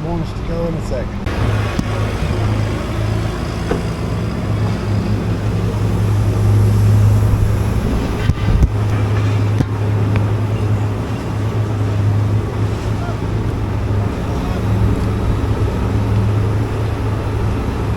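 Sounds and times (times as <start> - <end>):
pickup truck engine running: 1.1 - 17.9
short knocks: 1.3 - 5.2.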